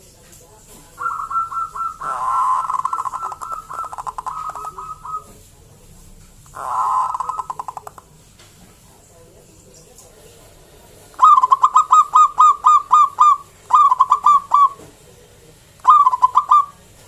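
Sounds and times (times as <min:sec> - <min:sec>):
dove cooing: 0:00.9 - 0:05.4, 0:06.5 - 0:08.0, 0:11.1 - 0:14.9, 0:15.8 - 0:17.0.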